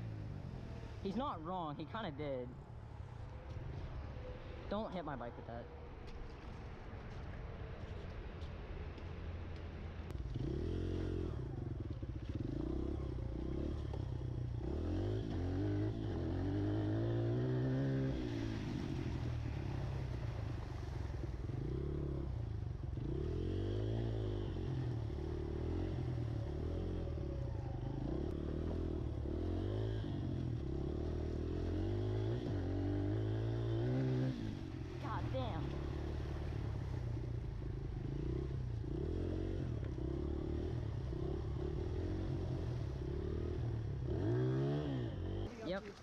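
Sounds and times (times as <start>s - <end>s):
motorbike engine revving: 10.3s - 20.8s, 21.4s - 45.6s.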